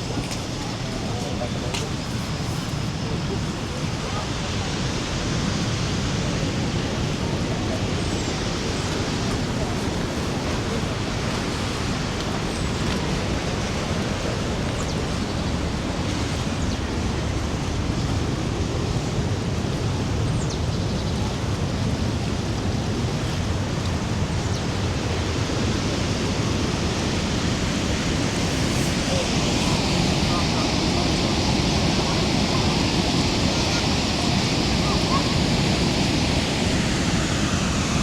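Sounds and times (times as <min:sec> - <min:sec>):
waterfall rushing: 0:21.4 - 0:38.0.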